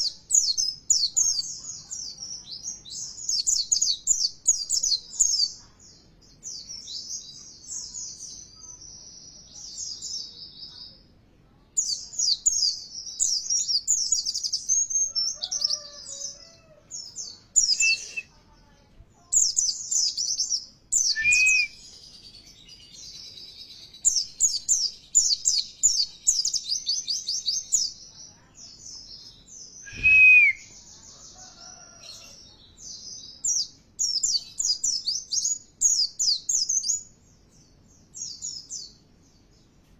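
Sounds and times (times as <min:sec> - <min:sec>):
whistled bird notes: 0:17.6 - 0:18.3, 0:21.0 - 0:22.0, 0:29.8 - 0:30.9.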